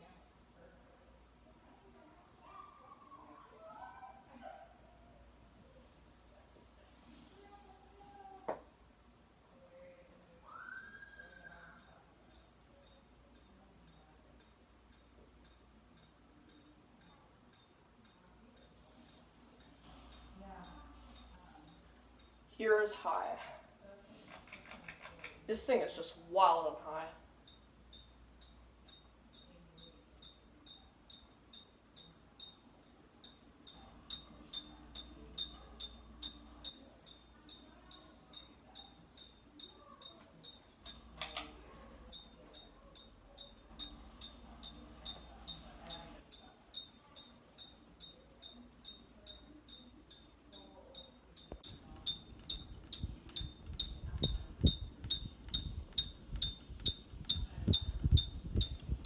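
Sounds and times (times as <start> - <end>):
ceiling fan ticking: 11.8 - 23.8, 26.6 - 59.0.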